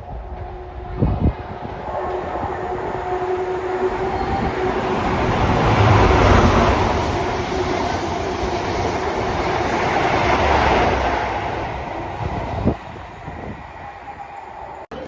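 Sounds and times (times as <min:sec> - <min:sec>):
train rumble and wheels on rails: 0:00.0 - 0:15.0.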